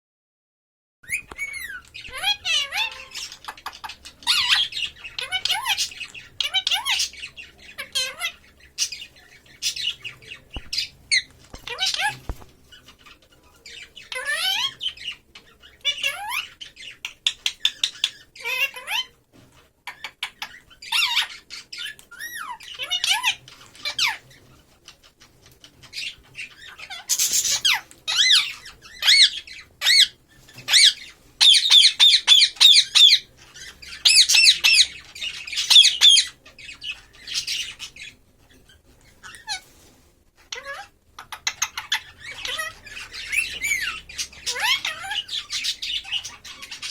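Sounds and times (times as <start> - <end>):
parrot whistling and calling: 1.0 - 12.2, 25.9 - 38.1, 40.5 - 46.9.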